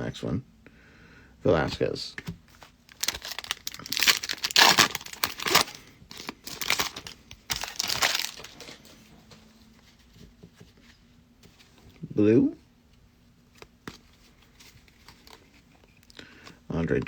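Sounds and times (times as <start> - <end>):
foil wrapper tearing and crinkling: 2.9 - 8.8.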